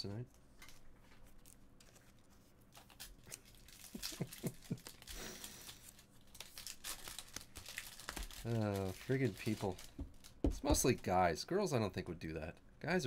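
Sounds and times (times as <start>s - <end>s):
cards rustling: 0.6s - 11.0s
foil wrappers crinkling: 1.3s - 11.0s.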